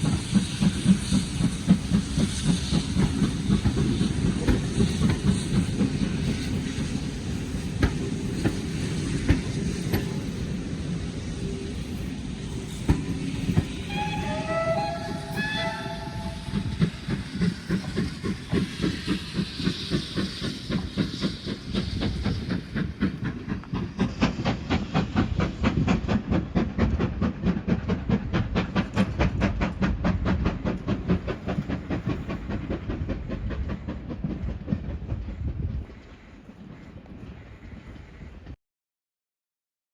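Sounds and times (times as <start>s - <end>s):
locomotive chuffing: 0.0s - 38.5s
steam locomotive whistle blasts: 13.7s - 17.3s.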